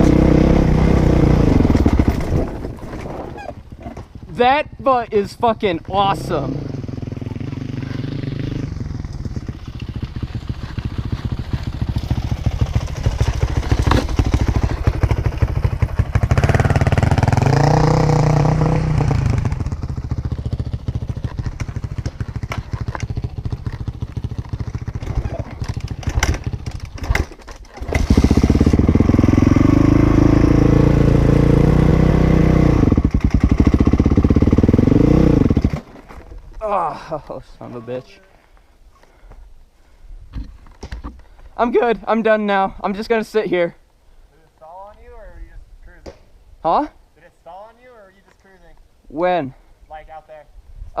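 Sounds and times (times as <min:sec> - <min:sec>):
dirt bike engine revving: 0:00.0 - 0:02.5, 0:05.9 - 0:26.6, 0:27.8 - 0:35.8.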